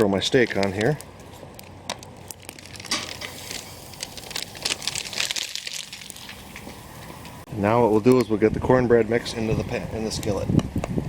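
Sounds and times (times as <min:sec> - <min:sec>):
wood fire crackling: 0:00.0 - 0:08.3
steak sizzling on a grill: 0:02.9 - 0:07.4.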